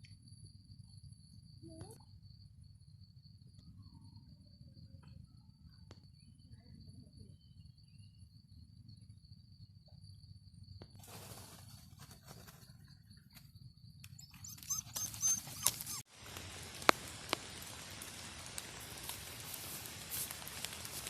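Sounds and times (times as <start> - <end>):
dog whimpering: 14.2 - 16.0.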